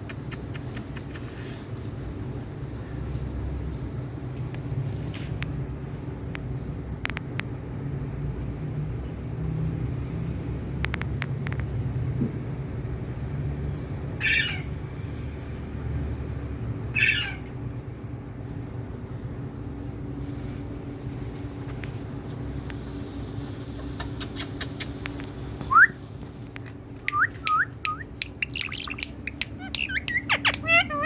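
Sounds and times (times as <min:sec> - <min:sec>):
parrot squawking: 0:14.2 - 0:14.8, 0:16.9 - 0:17.5, 0:28.2 - 0:31.0.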